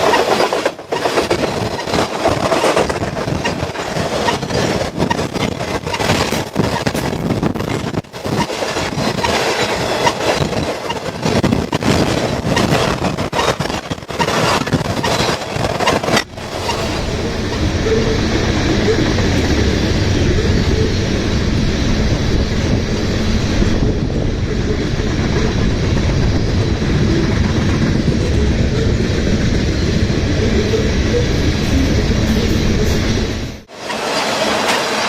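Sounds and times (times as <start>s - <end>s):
freight train wheels clattering: 0.0s - 18.3s.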